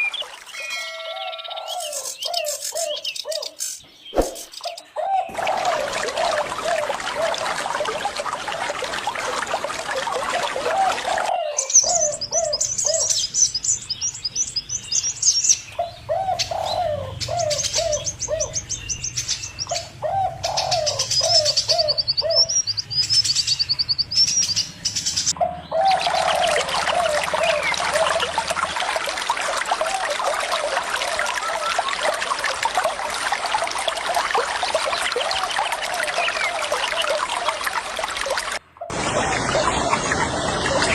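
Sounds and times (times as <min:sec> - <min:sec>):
running water: 0:00.0 - 0:02.3, 0:04.2 - 0:14.6, 0:25.1 - 0:40.9
high rapid bird chirps: 0:02.2 - 0:04.9.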